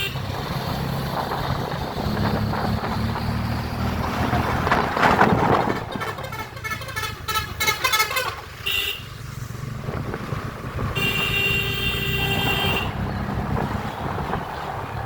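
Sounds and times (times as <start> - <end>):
horn tooting: 0.0 - 0.3, 5.6 - 9.2, 10.9 - 13.1.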